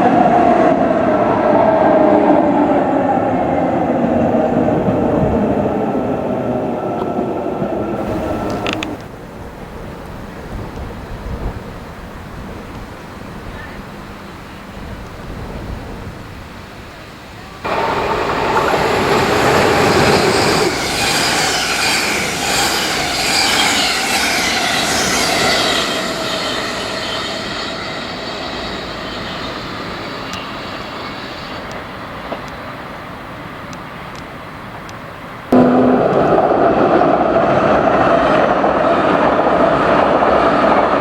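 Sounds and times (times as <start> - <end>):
train wheels rushing on rails: 0.0 - 41.0
high squealing of wheels: 17.7 - 32.6.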